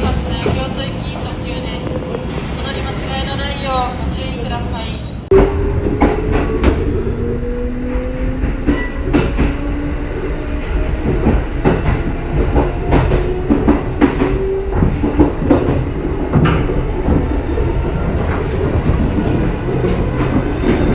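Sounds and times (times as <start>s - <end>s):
train wheels clattering over joints: 10.9s - 20.9s.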